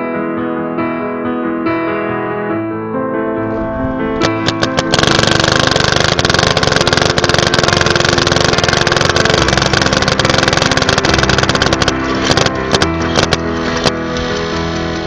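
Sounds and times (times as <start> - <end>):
piano music: 0.0 - 15.0
paintball marker firing: 4.2 - 13.4.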